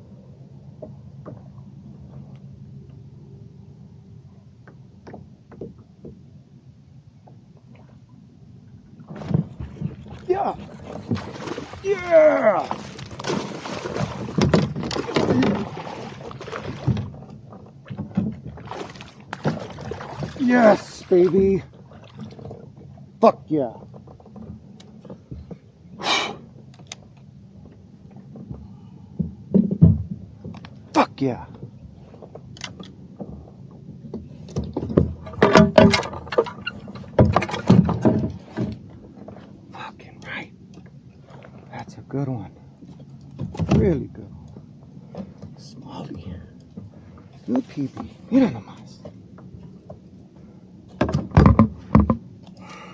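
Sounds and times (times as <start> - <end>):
water splashing: 9.0 - 22.6
knocks against kayak hull: 12.7 - 15.8, 34.1 - 36.5, 50.9 - 52.2.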